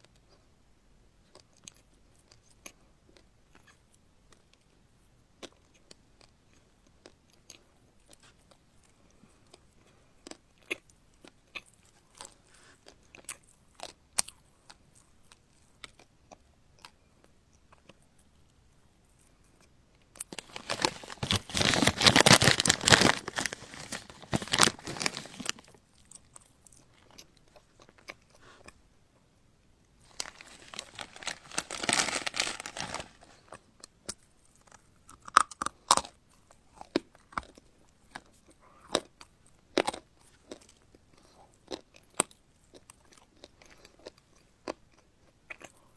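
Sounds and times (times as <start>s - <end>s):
chewing: 20.2s - 25.7s, 30.1s - 31.8s
loud crunching: 20.3s - 25.6s, 30.1s - 33.4s.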